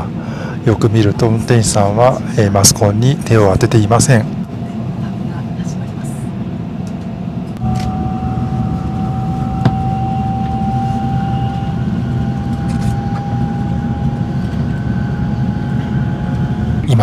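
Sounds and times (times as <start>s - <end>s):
low train rumble: 0.0s - 17.0s
electric whine rising in pitch: 7.6s - 16.9s.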